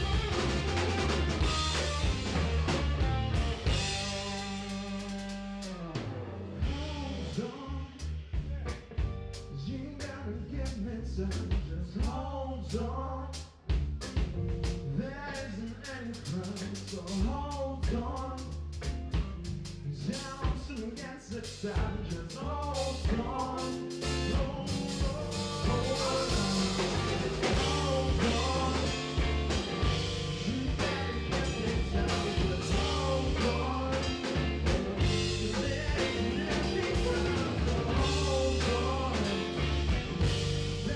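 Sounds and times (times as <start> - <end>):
live band playing soul-blues: 0.0 - 7.4, 23.1 - 40.9.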